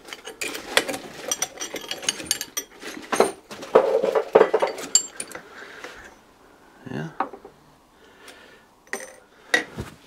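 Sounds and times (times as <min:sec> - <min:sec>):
tools and engine parts rattling: 0:00.0 - 0:06.2.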